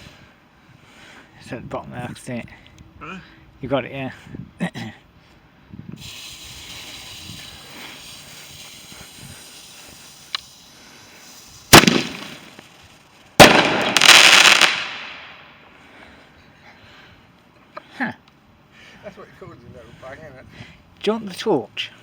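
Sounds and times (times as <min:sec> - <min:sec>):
firework fuse hissing: 0:06.0 - 0:15.4
firework bangs: 0:06.0 - 0:15.5
firework crackling: 0:06.0 - 0:15.6.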